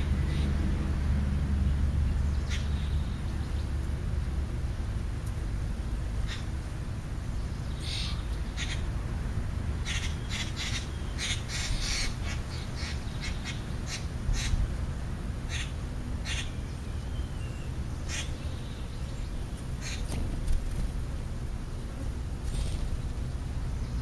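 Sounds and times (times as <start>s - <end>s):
birds chirping: 0.0s - 0.9s, 1.5s - 24.0s.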